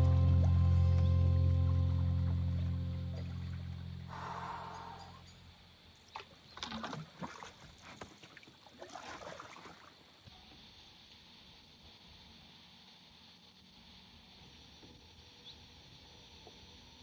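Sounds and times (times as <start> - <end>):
background music: 0.0 - 5.0
paddle splashing water: 6.0 - 10.2.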